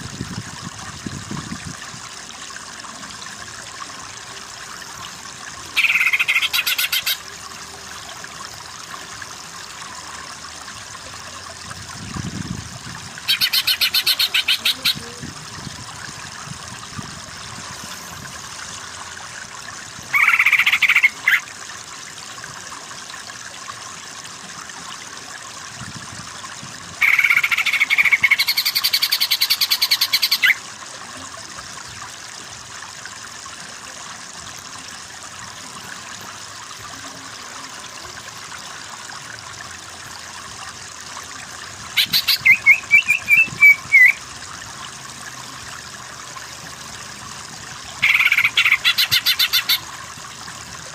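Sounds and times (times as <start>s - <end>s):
bird singing: 42.0s - 44.2s.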